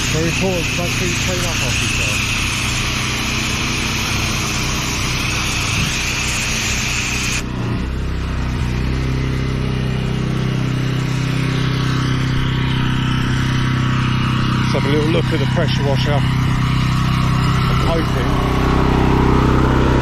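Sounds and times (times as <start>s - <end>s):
water jet hissing: 0.0s - 7.4s
pressure washer running: 0.0s - 20.0s.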